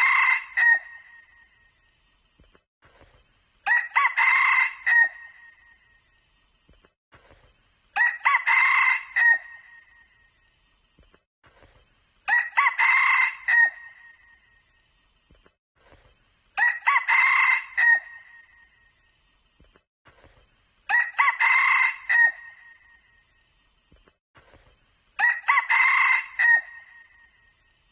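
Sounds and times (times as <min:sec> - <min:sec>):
junglefowl crowing: 0:16.6 - 0:18.5, 0:20.9 - 0:22.8, 0:25.2 - 0:27.2.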